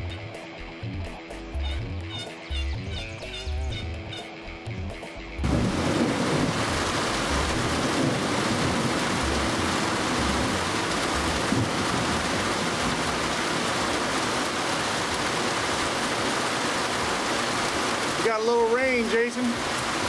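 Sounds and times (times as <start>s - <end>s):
low rumbling: 5.4s - 13.6s
steady rain falling: 5.4s - 20.0s.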